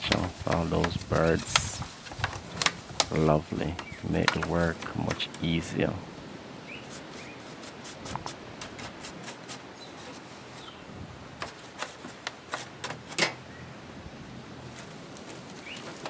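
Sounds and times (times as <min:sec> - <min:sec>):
clicks and taps: 0:00.0 - 0:05.4
bird chirps: 0:03.8 - 0:04.1, 0:06.6 - 0:07.4, 0:15.6 - 0:16.0.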